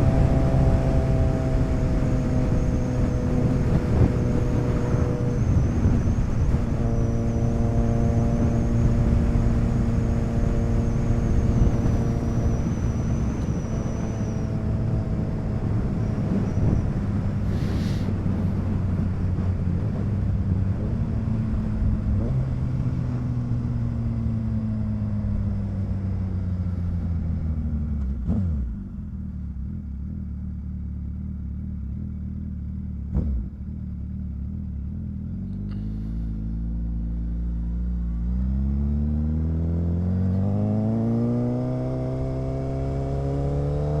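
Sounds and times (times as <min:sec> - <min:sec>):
motorcycle engine: 0:00.0 - 0:44.0.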